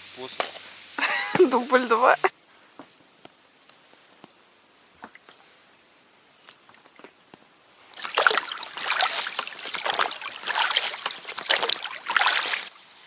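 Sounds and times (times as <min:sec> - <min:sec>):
water splashing and sloshing: 0:07.8 - 0:12.8.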